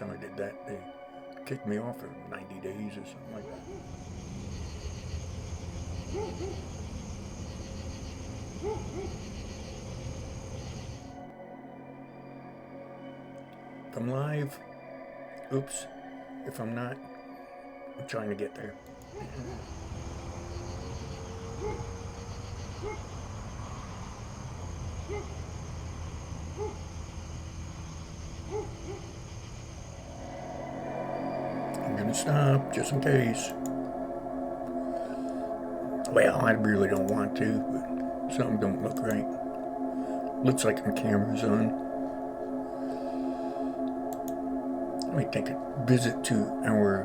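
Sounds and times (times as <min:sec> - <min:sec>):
owl hooting: 0:19.0 - 0:23.3
low rumble: 0:19.0 - 0:36.6.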